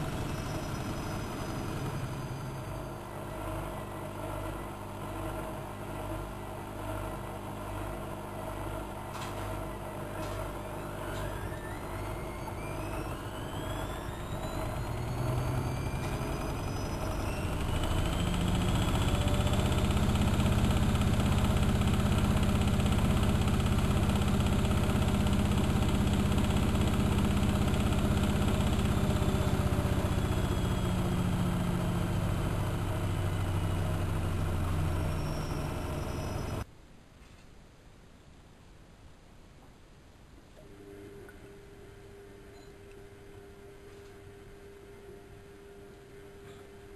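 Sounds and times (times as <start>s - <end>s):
washing machine spinning: 0.0s - 36.7s.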